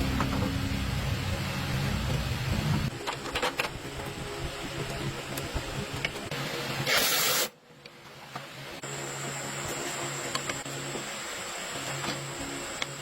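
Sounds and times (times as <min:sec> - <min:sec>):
low clattering workshop noise: 0:00.0 - 0:07.0
steady hum with high whine: 0:00.0 - 0:13.0.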